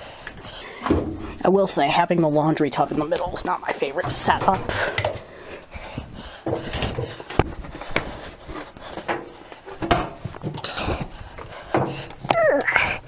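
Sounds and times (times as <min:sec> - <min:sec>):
knocks and clatter of laundry: 0:03.9 - 0:13.0.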